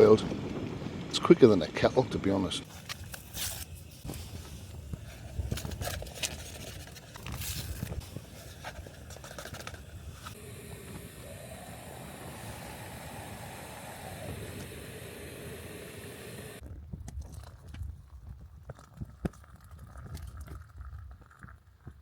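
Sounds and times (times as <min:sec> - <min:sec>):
steady hiss: 0:02.6 - 0:16.6
rustling and clicking handling noise: 0:02.7 - 0:10.4.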